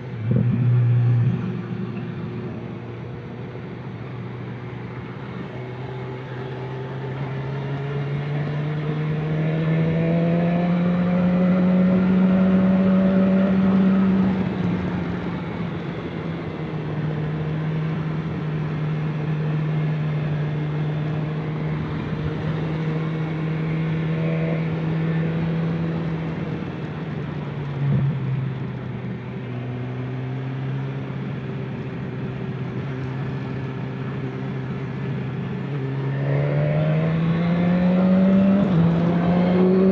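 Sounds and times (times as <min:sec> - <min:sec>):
vehicle engine running: 0:00.0 - 0:07.3.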